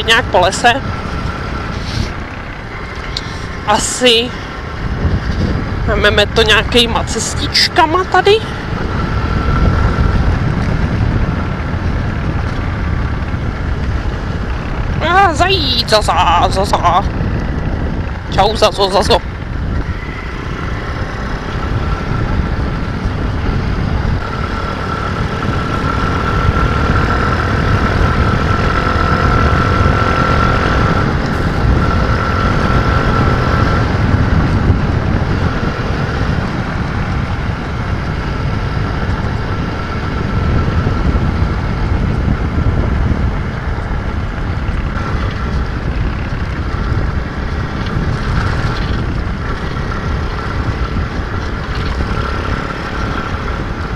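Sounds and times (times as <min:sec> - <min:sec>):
pit bike engine running: 0:00.0 - 0:53.9
rumble on microphone: 0:00.0 - 0:53.9.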